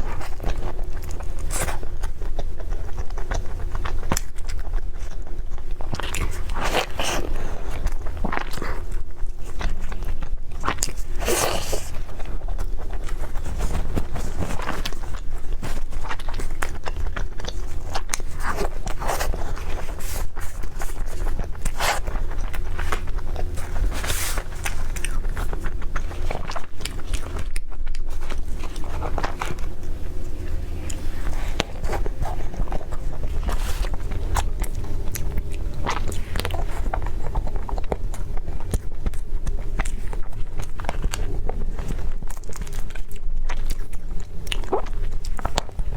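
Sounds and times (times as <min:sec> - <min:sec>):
biting and chewing: 0:00.0 - 0:45.9
scraping and crunching: 0:10.7 - 0:43.0.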